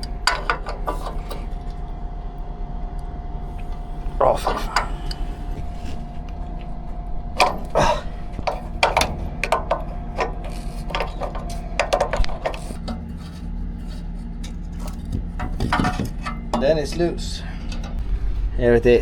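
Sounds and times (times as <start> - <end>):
hand tool scraping metal: 0.0 - 1.7, 7.4 - 17.1.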